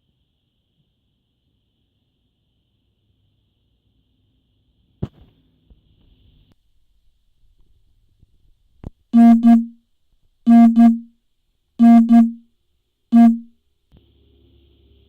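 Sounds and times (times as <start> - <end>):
phone electronic ringtone: 9.2 - 9.7, 10.5 - 11.0, 11.8 - 12.4, 13.2 - 13.5.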